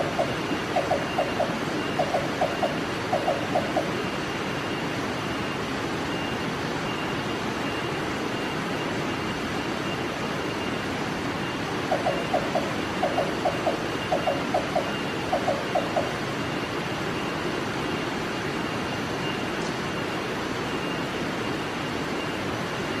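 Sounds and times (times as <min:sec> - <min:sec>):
bird calling low hollow notes: 0:00.0 - 0:03.9.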